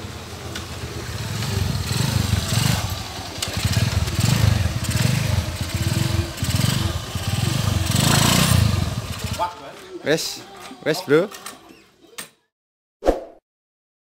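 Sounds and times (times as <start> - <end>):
motorcycle engine revving: 0.0 - 9.7.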